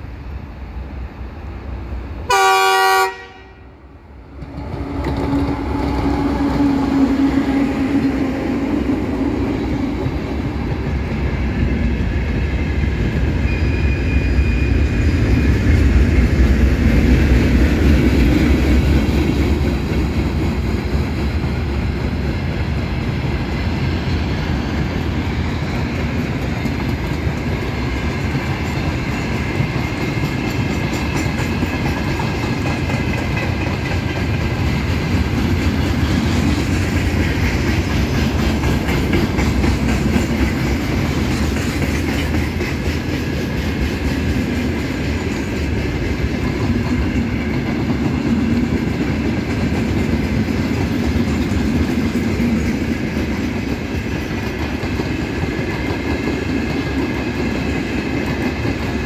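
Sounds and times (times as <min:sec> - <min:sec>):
locomotive horn blast: 0:02.3 - 0:03.7
freight wagons rumbling on rails: 0:04.1 - 0:59.0.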